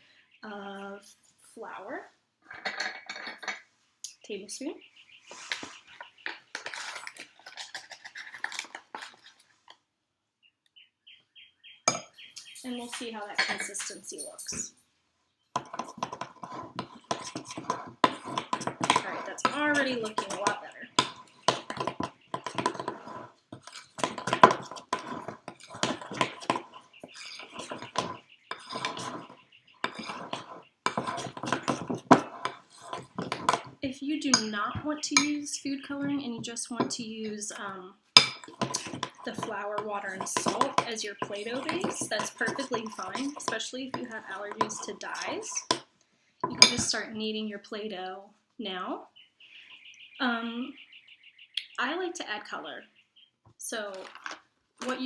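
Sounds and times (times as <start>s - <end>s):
spoon scraping dough in bowl: 5.2s - 9.5s, 11.9s - 14.7s, 15.6s - 45.8s, 46.4s - 47.0s.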